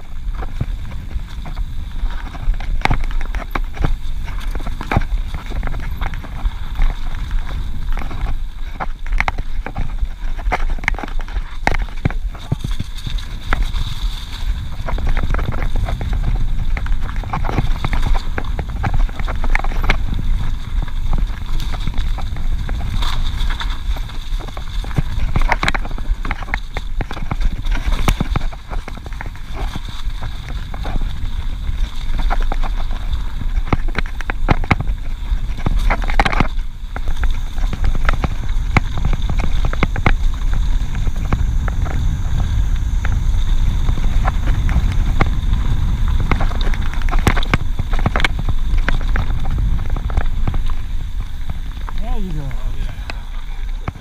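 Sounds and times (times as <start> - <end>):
bike rattling over bumps: 0.0 - 54.0
bike tyres rumbling on dirt: 0.0 - 54.0.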